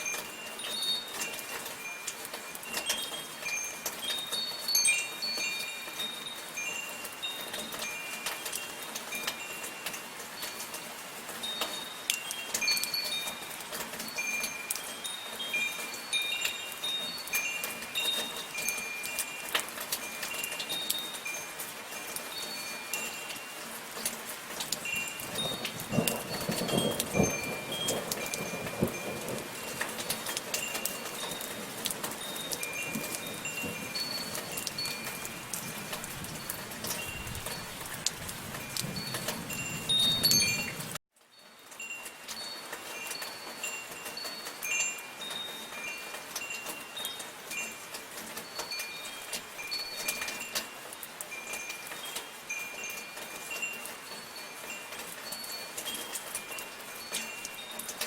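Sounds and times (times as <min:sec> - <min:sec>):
light rain falling: 0:00.0 - 0:58.0
metal wind chimes ringing: 0:00.0 - 0:58.0.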